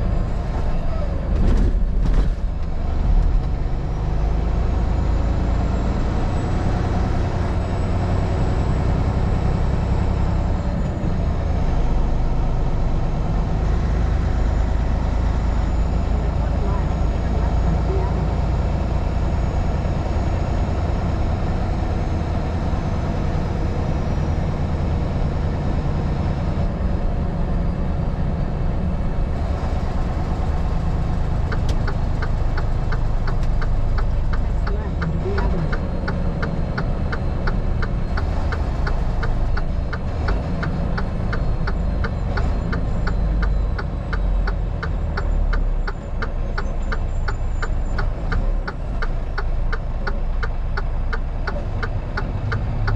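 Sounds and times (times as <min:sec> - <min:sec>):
vehicle engine and road noise: 0:00.0 - 0:52.9
turn signal clicking: 0:31.4 - 0:52.9.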